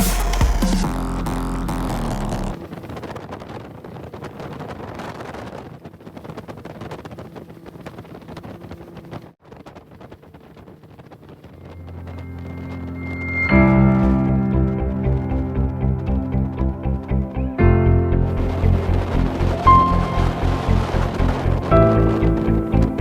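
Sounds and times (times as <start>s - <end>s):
background music: 0.0s - 2.6s, 11.9s - 23.0s
boat engine running: 0.0s - 23.0s
wind buffeting microphone: 2.5s - 23.0s.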